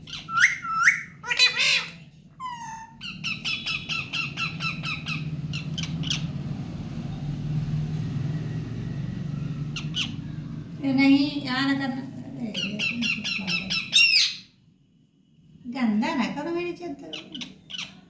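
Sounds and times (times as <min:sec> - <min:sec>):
parrot squawking: 0:00.0 - 0:06.6, 0:09.6 - 0:10.5, 0:12.5 - 0:14.6, 0:17.0 - 0:18.0
low hum: 0:04.4 - 0:12.5.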